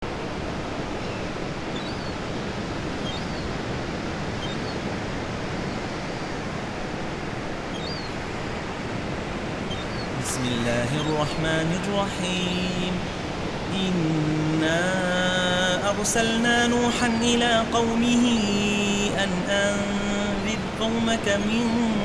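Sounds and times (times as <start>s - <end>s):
ocean surf washing: 0.0s - 22.0s
faint seagull cries: 0.1s - 13.8s.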